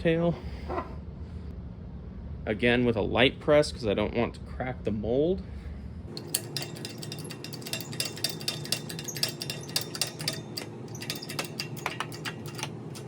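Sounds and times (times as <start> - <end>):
steady low hum: 0.0 - 13.0
metallic clicks and ticks: 6.1 - 13.0.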